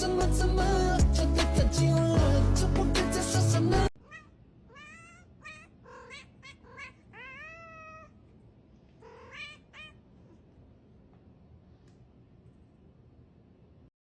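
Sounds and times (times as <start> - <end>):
background music: 0.0 - 3.9
cat meowing: 4.0 - 8.2, 9.0 - 10.0.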